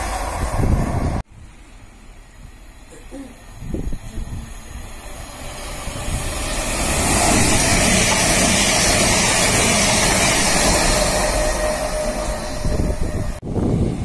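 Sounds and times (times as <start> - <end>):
train passing at speed: 0.0 - 14.0.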